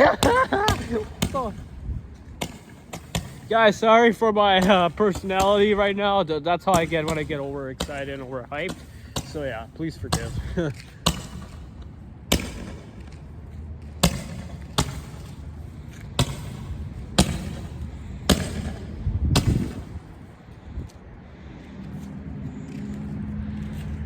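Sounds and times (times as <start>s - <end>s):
firework bangs: 2.4s - 6.0s, 6.7s - 13.0s, 14.0s - 20.2s.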